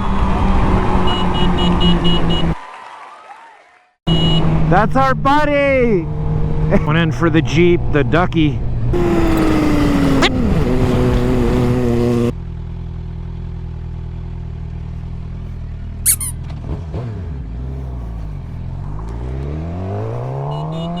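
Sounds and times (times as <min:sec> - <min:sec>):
motorcycle engine running: 0:09.0 - 0:17.5
high squeak: 0:16.1 - 0:16.4.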